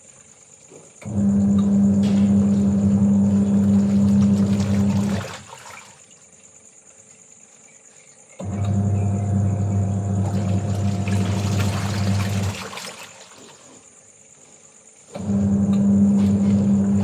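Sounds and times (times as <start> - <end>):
washing machine pump humming: 0.0 - 6.2, 8.4 - 17.0
insects chirring: 0.0 - 9.7, 10.4 - 15.2
water running: 1.7 - 7.7, 8.5 - 14.0.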